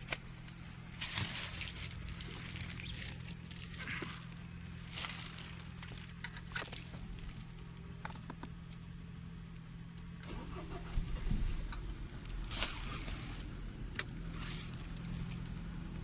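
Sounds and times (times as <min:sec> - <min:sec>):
car engine humming: 0:00.0 - 0:16.0
low rumble: 0:10.6 - 0:16.0.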